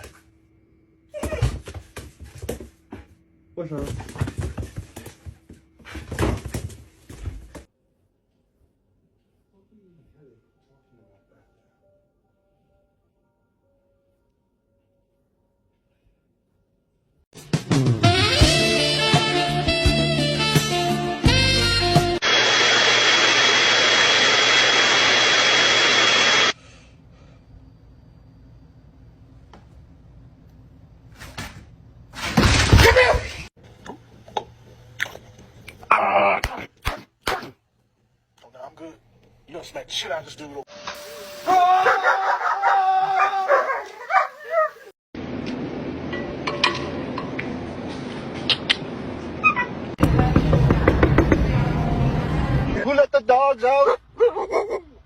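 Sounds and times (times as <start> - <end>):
electric blower rush with whine: 22.2 - 26.6
dog whining and yipping: 43.2 - 44.9.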